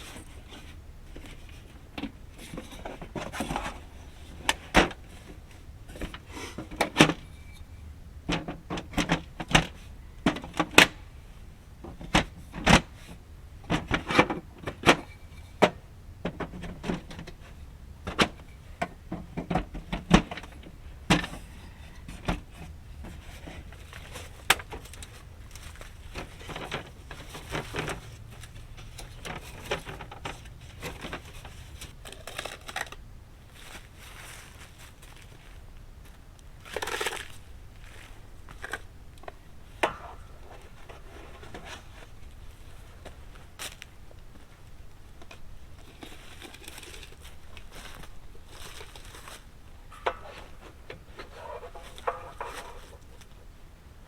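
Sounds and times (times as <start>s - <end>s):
camping gear clattering: 18.1s - 53.5s.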